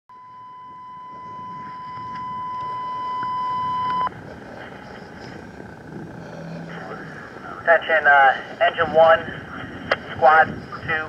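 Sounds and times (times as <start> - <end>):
radio alert tone long beep: 0.1 - 4.1
low background rumble: 0.1 - 11.0.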